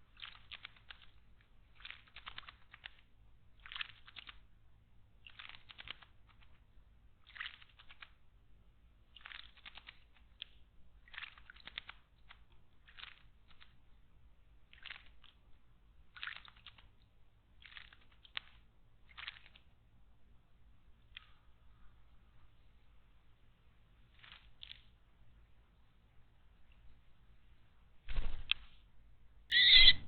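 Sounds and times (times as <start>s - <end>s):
bird splashing and fluttering: 0.0s - 4.5s, 5.2s - 6.6s, 7.2s - 8.2s, 9.1s - 13.8s, 14.6s - 15.4s, 16.1s - 17.0s, 17.6s - 19.7s, 28.0s - 28.9s.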